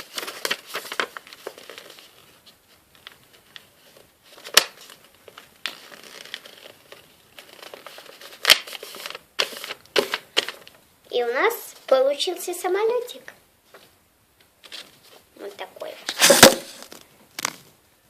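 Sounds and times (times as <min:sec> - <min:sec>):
paper crinkling and rustling: 0:00.0 - 0:10.8, 0:14.6 - 0:15.3.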